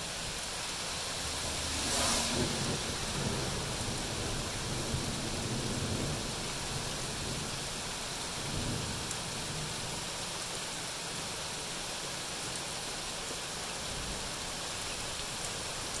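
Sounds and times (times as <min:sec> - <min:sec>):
steady rain hiss: 0:00.0 - 0:16.0
low rumble: 0:00.7 - 0:04.8.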